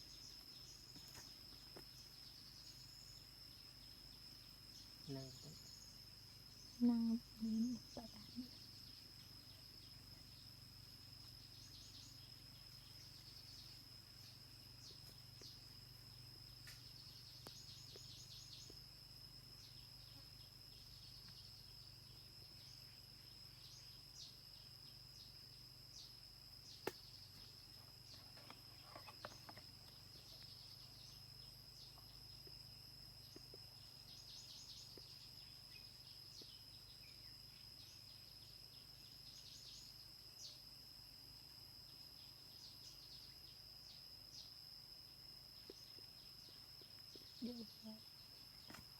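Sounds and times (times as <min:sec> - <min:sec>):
insect drone: 0:00.0 - 0:48.9
rapid insect chirping: 0:00.0 - 0:48.9.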